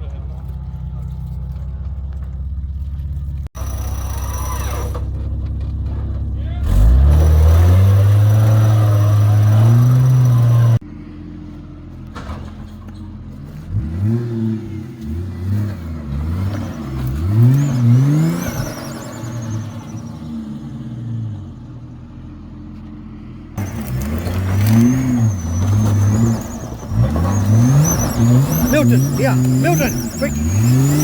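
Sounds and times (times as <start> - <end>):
four-wheel drive engine revving: 6.4 - 10.8, 13.6 - 21.5, 23.6 - 31.0.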